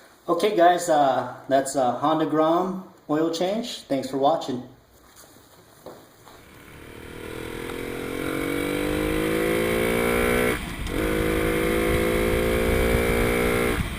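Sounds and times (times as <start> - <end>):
motorcycle engine accelerating: 6.4 - 13.9.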